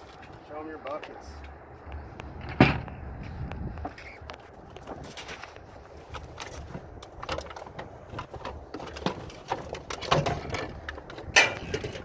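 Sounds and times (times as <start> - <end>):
scrap metal clattering: 6.4 - 12.0.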